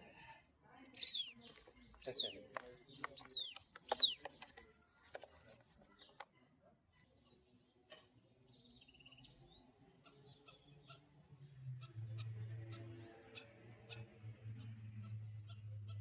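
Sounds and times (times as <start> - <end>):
faint bird chirps: 0.8 - 11.0
lapwing calls: 1.0 - 2.4, 3.0 - 4.2.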